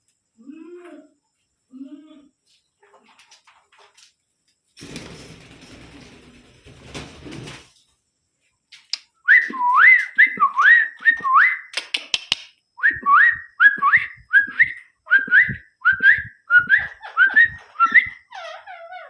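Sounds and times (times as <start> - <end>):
parrot clicks: 11.7 - 12.6
parrot whistling: 12.8 - 19.0.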